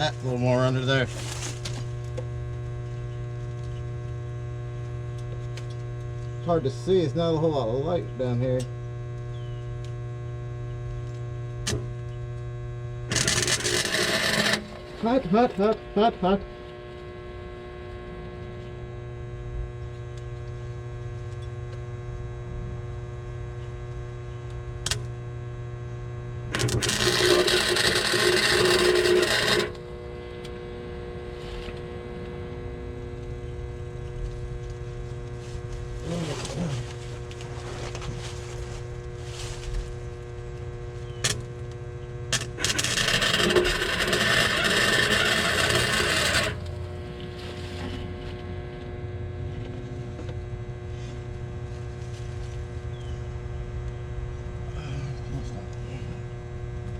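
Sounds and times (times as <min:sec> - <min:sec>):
welding arc crackling: 0:00.0 - 0:07.4, 0:11.0 - 0:18.0, 0:23.1 - 0:48.2
welder humming: 0:00.0 - 0:56.9.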